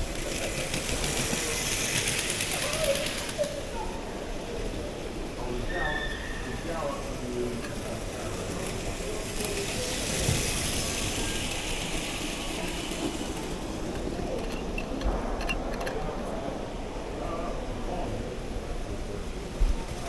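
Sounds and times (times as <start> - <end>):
mechanism clicking and rattling: 13.1 - 16.3.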